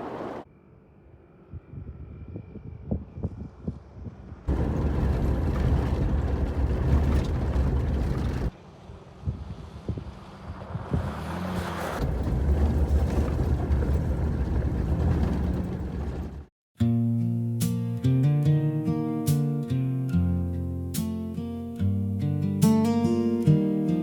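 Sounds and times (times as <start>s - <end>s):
engine and tyre rumble: 0.0s - 16.5s
wind buffeting microphone: 1.5s - 8.6s, 9.2s - 11.4s.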